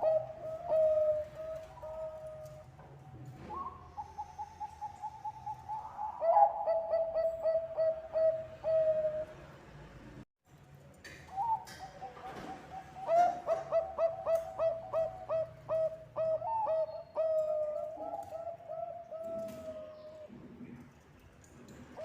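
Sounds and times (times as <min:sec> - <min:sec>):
doves cooing: 0:00.0 - 0:09.5, 0:11.3 - 0:20.6.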